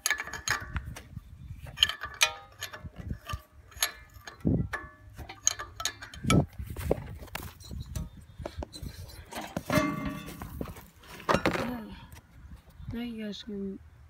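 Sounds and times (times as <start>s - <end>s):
hand tools clinking on metal: 1.7s - 6.5s, 9.1s - 11.7s.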